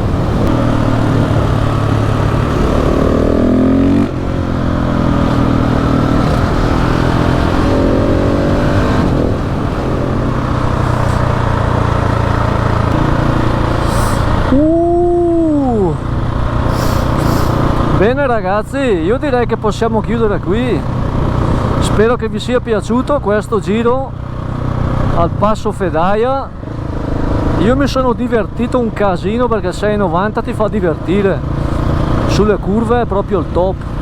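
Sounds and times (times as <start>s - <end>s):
motorcycle engine: 0.0s - 34.0s
rushing air hiss: 10.7s - 12.0s, 13.5s - 14.6s, 16.6s - 18.0s.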